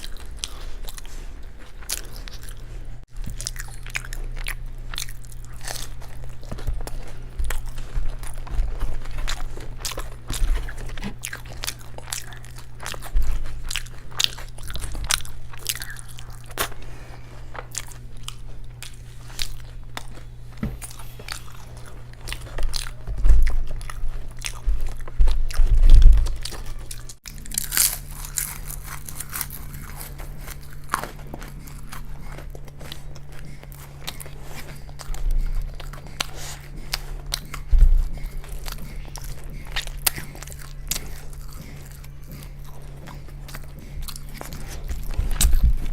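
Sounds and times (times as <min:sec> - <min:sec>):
crunchy bites and chewing: 0:00.0 - 0:45.9
low steady hum: 0:00.0 - 0:45.9
low thumps: 0:37.6 - 0:38.8.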